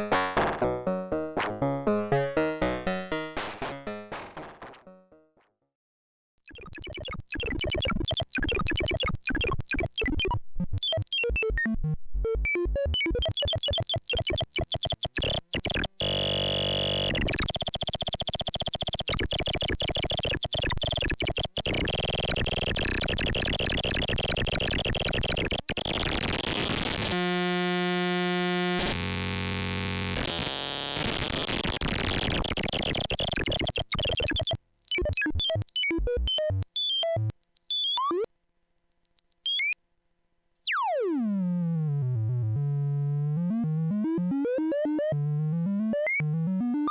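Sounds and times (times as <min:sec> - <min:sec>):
stuttering synthesizer pattern: 0:00.0 - 0:05.2
buzzing synthesizer drones: 0:27.0 - 0:30.9.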